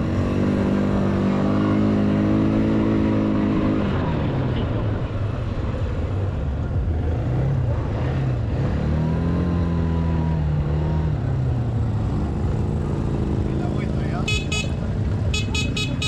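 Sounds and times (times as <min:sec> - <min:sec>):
quad engine revving: 0:00.0 - 0:04.3.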